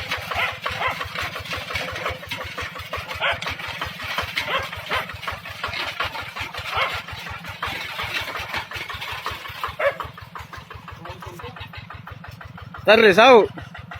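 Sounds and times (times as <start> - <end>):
tractor engine chugging: 0.0 - 13.9.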